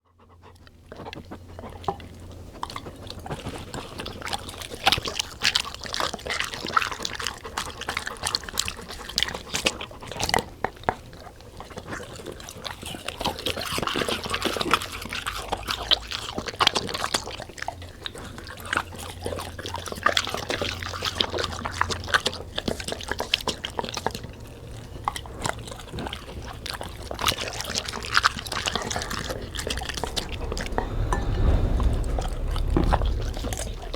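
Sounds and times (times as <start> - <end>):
low hum: 28.2 - 33.9.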